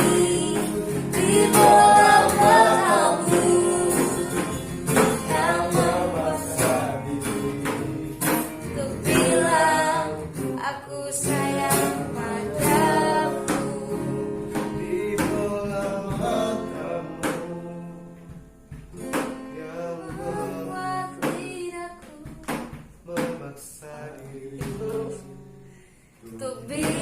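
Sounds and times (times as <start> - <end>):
person singing pop ballad: 0.0 - 18.4, 19.9 - 22.5, 26.4 - 27.0
guitar accompaniment: 0.0 - 23.7, 24.5 - 27.0.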